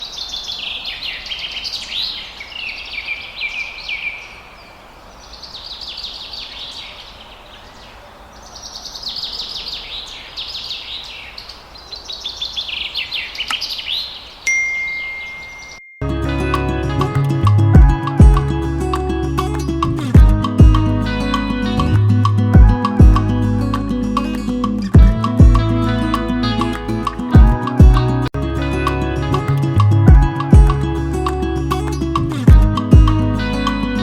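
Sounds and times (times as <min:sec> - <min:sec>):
birds twittering: 0:00.0 - 0:15.9
steady high tone: 0:14.5 - 0:34.0.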